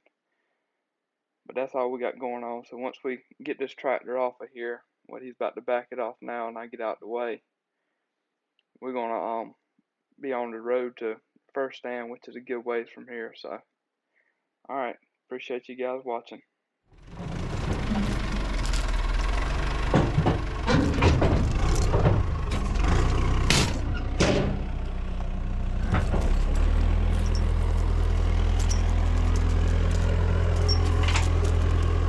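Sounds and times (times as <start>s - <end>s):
diesel engine running: 17.0s - 32.0s
sharp metal clanks: 17.6s - 31.8s.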